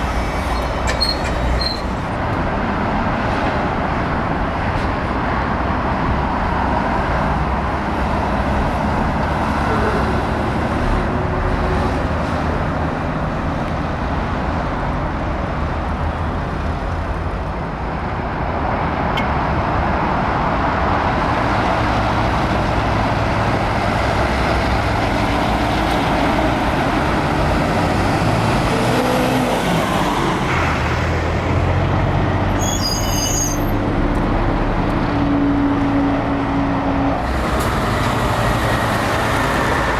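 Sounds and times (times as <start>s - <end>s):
diesel trucks driving past: 0.0s - 39.9s
road noise: 0.0s - 39.9s
high-pitched squeal: 32.6s - 33.8s.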